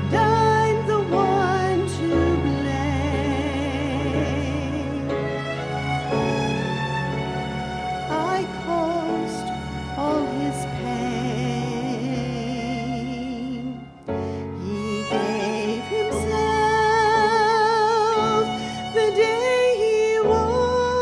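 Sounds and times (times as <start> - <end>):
person singing with vibrato: 0.0 - 5.9, 8.1 - 21.0
instrumental accompaniment: 0.0 - 19.9.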